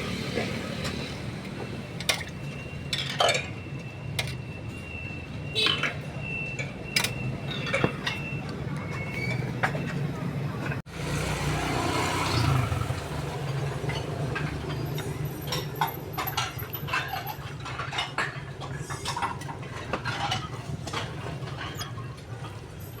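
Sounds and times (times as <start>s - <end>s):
dishes and utensils clinking: 2.9s - 3.6s.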